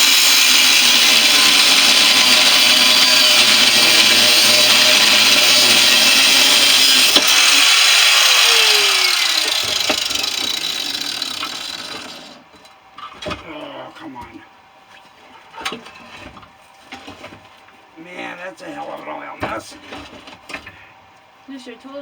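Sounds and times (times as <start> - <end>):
power tool cutting metal: 0.0 - 12.4
power tool winding down whine: 0.0 - 12.4.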